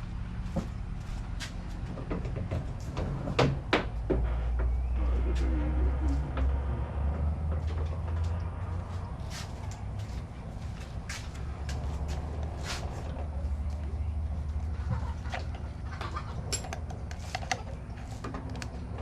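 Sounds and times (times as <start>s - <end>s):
steady low rumble: 0.0s - 19.0s
hand tools clicking and clinking: 16.3s - 19.0s.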